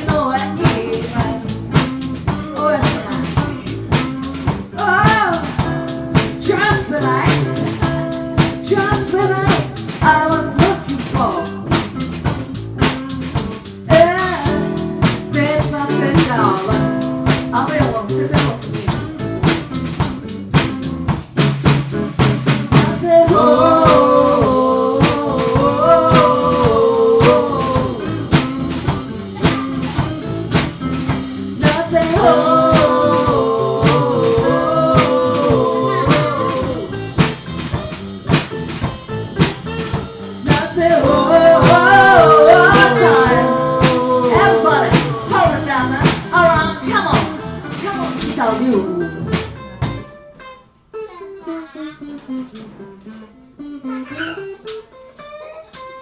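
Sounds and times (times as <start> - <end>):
drum kit beat: 0.0 - 50.3
guitar chords: 0.0 - 55.4.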